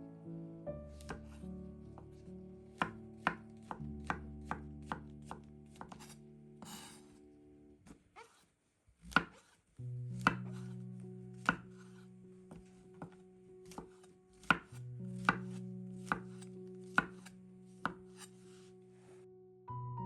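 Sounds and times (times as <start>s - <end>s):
soft background music: 0.0s - 7.9s, 9.8s - 20.0s
knife chopping on cutting board: 1.0s - 1.4s, 2.8s - 7.1s, 9.1s - 9.6s, 10.2s - 10.8s, 11.4s - 18.6s.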